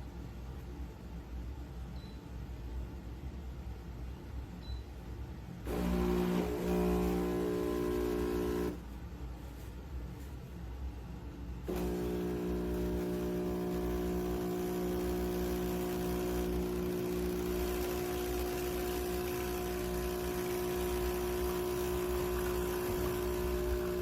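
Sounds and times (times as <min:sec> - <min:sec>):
espresso machine pump humming: 0:05.7 - 0:08.8, 0:11.7 - 0:24.0.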